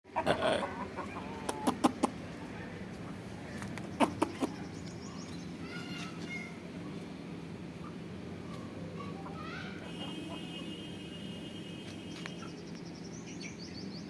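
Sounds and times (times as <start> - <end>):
chickens calling: 0.1 - 10.8.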